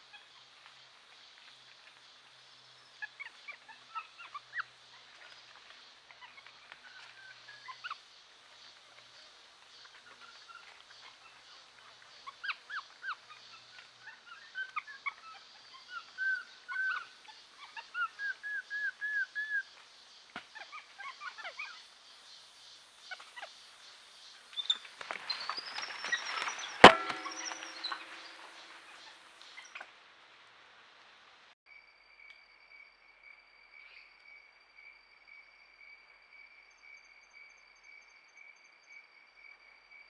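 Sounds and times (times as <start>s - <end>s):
sharp crack: 26.8s - 28.8s.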